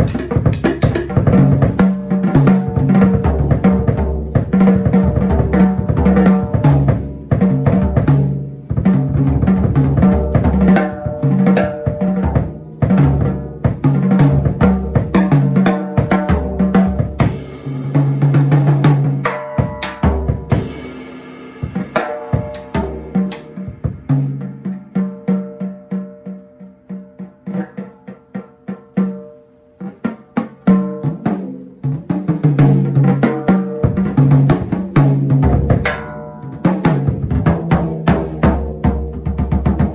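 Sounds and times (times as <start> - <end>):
drum-driven band music: 0.0 - 25.6, 32.4 - 39.9.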